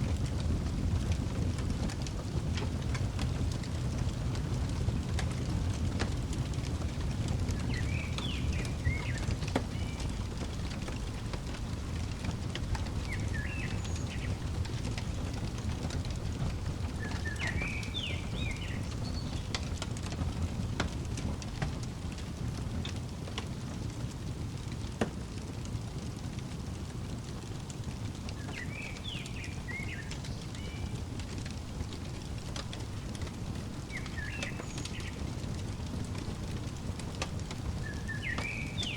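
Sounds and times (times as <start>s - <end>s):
wood fire crackling: 0.0s - 38.9s
bird chirping: 7.6s - 10.1s, 12.7s - 14.6s, 17.0s - 19.5s, 28.4s - 31.0s, 33.8s - 35.3s, 37.8s - 38.9s.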